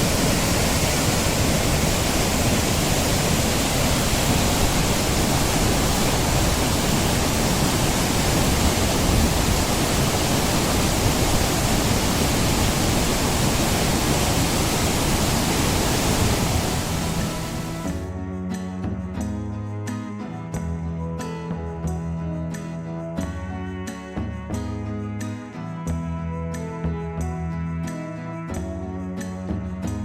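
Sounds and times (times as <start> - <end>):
waterfall rushing: 0.0 - 18.0
guitar music: 16.6 - 30.0.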